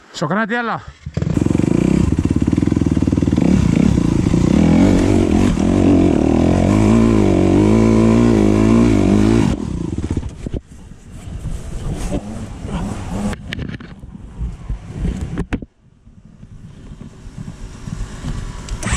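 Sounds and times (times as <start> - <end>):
dirt bike engine revving: 1.0 - 10.3, 12.0 - 13.4, 18.7 - 18.9.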